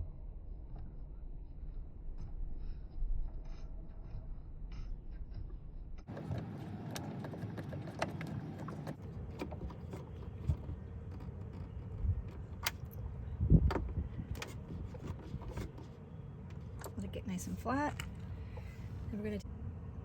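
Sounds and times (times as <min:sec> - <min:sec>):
tool and parts rattling: 0:06.1 - 0:17.0.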